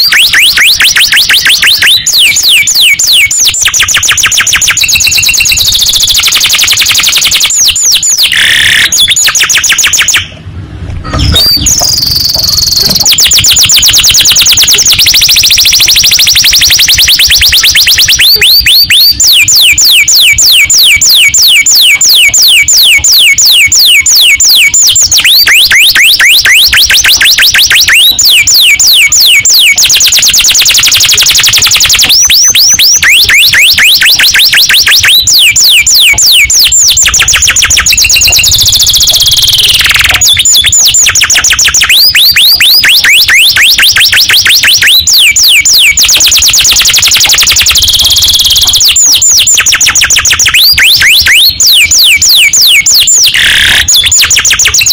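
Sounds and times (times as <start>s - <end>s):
canary singing trills: 0.0s - 10.4s, 11.0s - 54.9s
long falling whistle: 11.1s - 23.4s.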